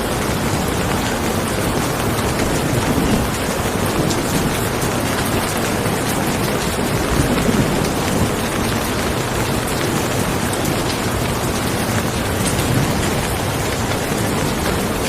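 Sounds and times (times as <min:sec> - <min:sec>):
heavy rain hissing: 0:00.0 - 0:15.0
low thunder rumbles: 0:00.0 - 0:15.0.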